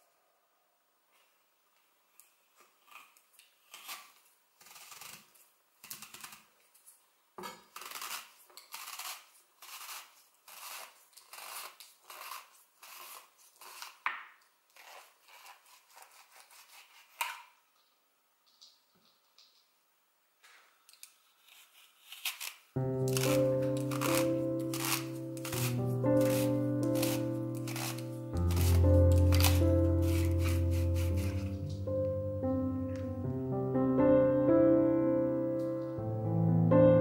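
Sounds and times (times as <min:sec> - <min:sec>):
apple corer crunching through apple: 0:02.6 - 0:06.8, 0:07.6 - 0:14.1, 0:21.4 - 0:31.7.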